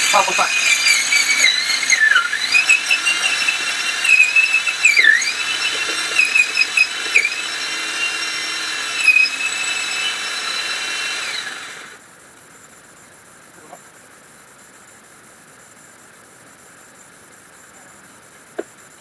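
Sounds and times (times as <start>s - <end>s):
power tool cutting wood: 0.0s - 12.0s.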